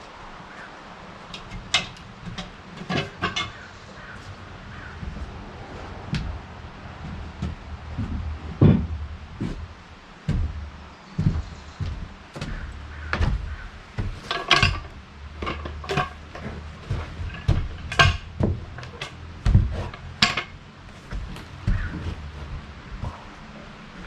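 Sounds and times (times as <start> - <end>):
metallic clanks and knocks: 0.5 - 24.0.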